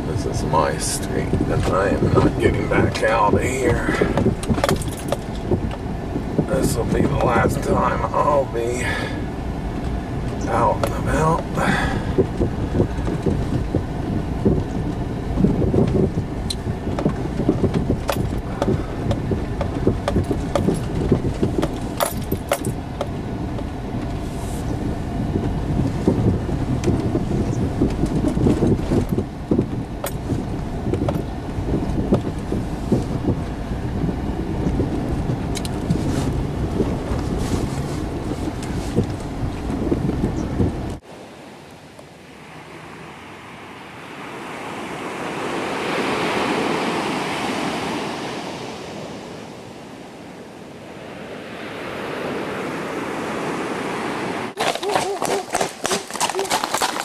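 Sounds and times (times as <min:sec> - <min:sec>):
car driving through snow: 0:00.0 - 0:41.3.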